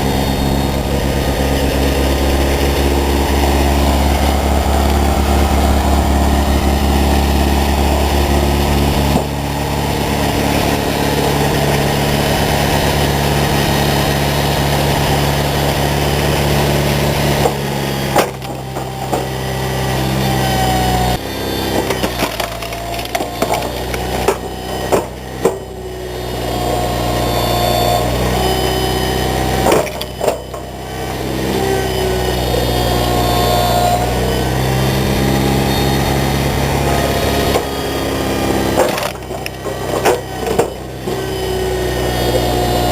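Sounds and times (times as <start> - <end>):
wood splitter engine running: 0.0 - 42.9
wood cracking and splintering: 17.2 - 19.6, 21.6 - 25.7, 29.5 - 30.7, 37.5 - 41.6.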